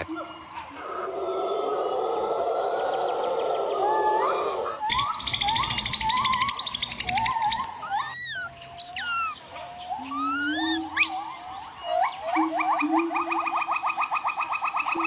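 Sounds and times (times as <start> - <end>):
forest birds whistling: 0.0 - 15.0
insect drone: 0.0 - 15.0.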